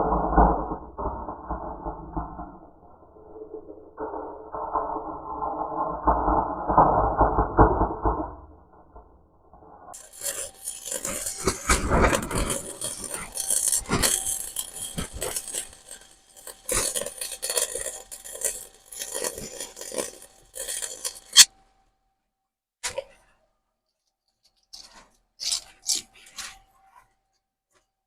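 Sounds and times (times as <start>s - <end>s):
welder arc crackling: 10.0s - 21.5s.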